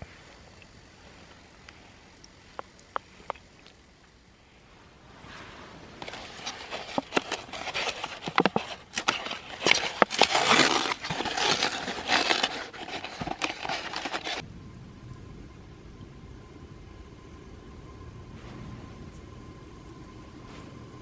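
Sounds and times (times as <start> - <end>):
fire hissing: 0.0 - 21.0
wood fire crackling and popping: 0.2 - 15.2.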